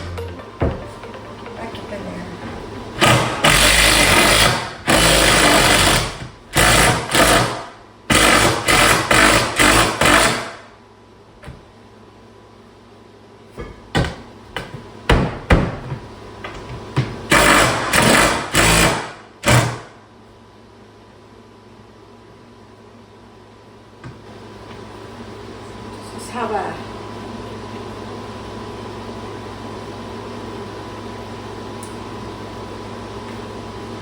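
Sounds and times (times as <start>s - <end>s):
power drill driving screws: 3.0s - 10.5s, 17.3s - 19.8s.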